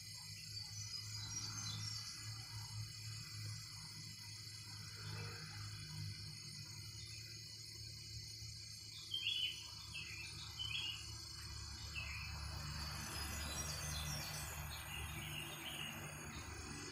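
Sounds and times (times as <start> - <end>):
bird chirping: 0.0 - 2.9, 8.6 - 16.9
insects droning: 0.0 - 16.9.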